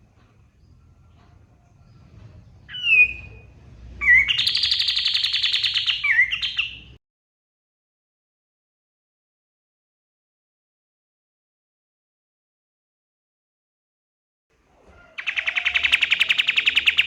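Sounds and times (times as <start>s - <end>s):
songbird singing: 0.0s - 7.0s, 14.9s - 17.0s.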